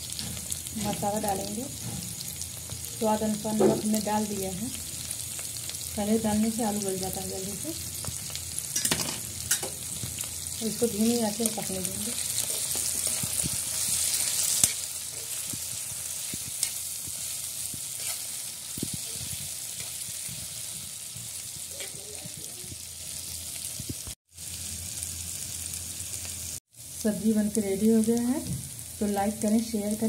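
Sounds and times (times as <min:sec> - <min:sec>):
vegetables sizzling in oil: 0:00.0 - 0:30.0
spatula scraping a pan: 0:12.4 - 0:20.9.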